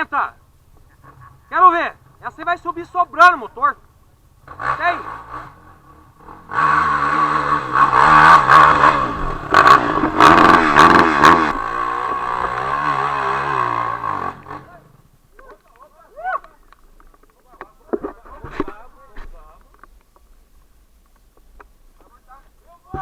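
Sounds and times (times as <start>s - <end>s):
dirt bike engine revving: 4.3s - 15.1s.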